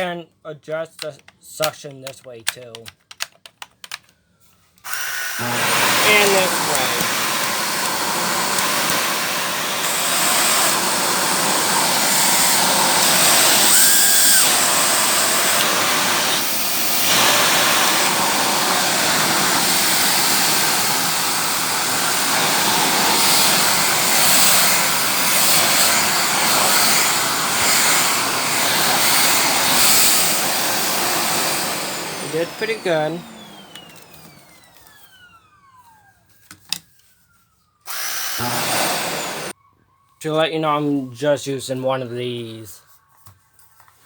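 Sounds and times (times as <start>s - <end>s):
vacuum cleaner suction whoosh: 4.9s - 36.1s, 37.9s - 39.6s.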